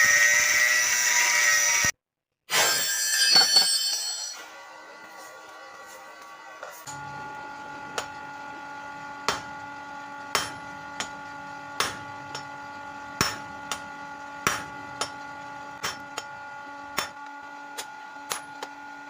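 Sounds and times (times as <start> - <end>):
hammer striking metal: 9.2 - 9.6, 10.3 - 11.2, 11.8 - 12.6, 13.2 - 15.2, 15.8 - 16.3, 16.9 - 17.2.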